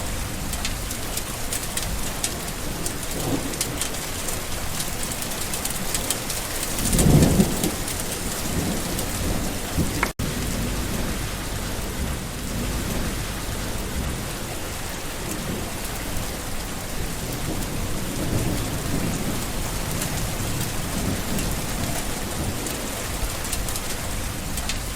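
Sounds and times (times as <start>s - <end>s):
rain falling on plants: 0.0s - 24.9s
low rumble: 9.1s - 22.0s.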